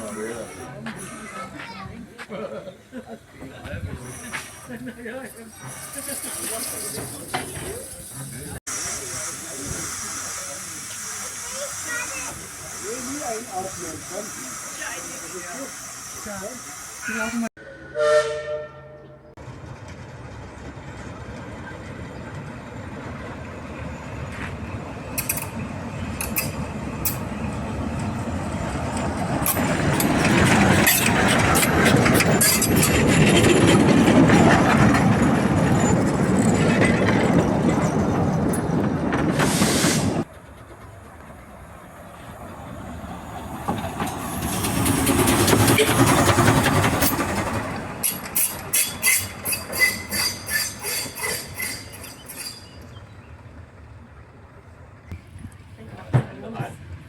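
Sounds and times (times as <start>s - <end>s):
train rolling on track: 0.0s - 57.0s
wheels clicking and clattering: 28.8s - 39.4s, 43.0s - 53.0s.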